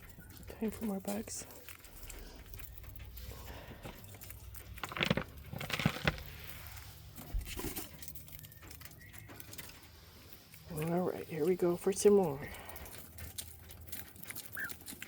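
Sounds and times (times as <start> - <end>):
bag rustling and crinkling: 0.0 - 11.6.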